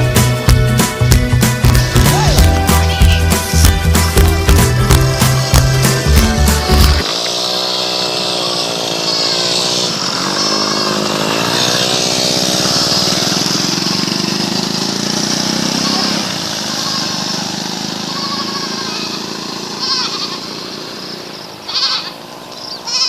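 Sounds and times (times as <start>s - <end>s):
small engine running: 0.0s - 23.0s
steady rushing hiss: 8.2s - 23.0s.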